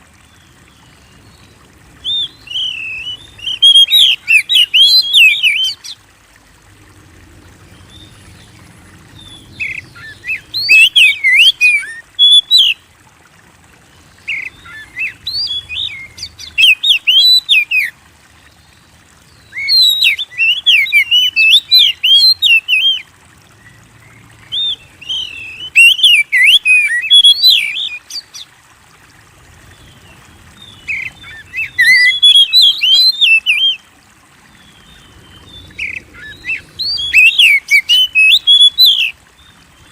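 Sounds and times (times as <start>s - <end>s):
bird singing whistled notes: 2.0s - 5.9s, 9.5s - 12.8s, 14.3s - 17.9s, 19.4s - 23.0s, 24.5s - 28.4s, 30.6s - 33.8s, 34.9s - 39.1s.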